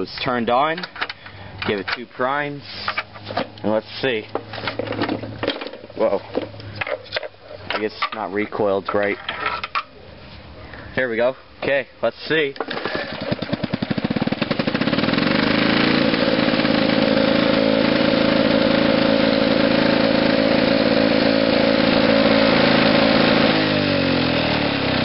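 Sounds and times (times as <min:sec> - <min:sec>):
two-stroke mower engine running: 0:12.6 - 0:25.0.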